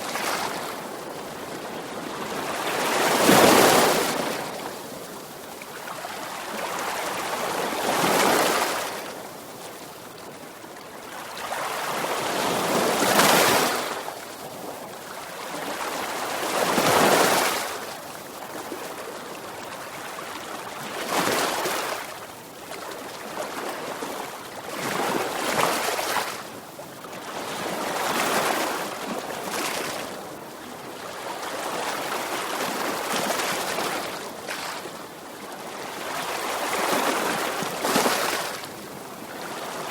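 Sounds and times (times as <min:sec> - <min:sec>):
sea waves breaking on shore: 0:00.0 - 0:05.0, 0:20.4 - 0:39.9.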